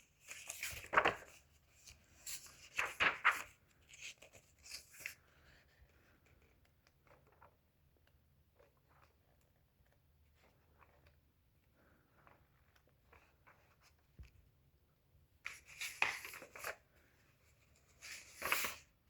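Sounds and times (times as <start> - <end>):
book pages rustling: 0.0 - 7.5, 15.4 - 19.0.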